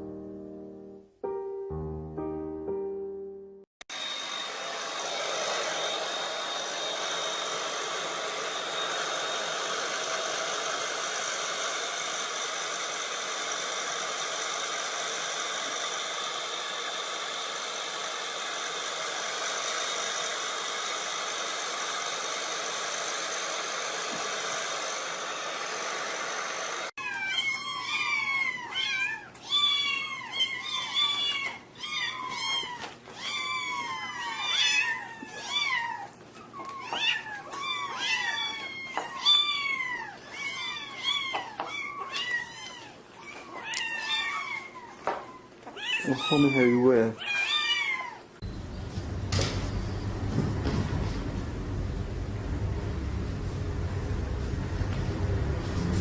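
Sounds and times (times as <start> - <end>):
steady noisy hum: 48.4 - 56.0.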